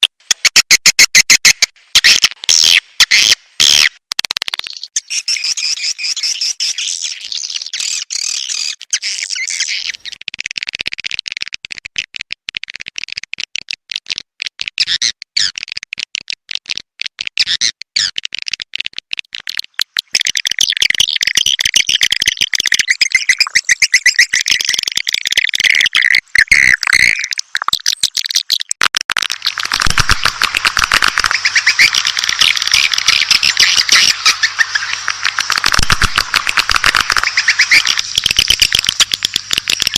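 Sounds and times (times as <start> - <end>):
swiftlet chirps and twittering: 4.6 - 10.2, 19.5 - 28.7, 29.3 - 39.9.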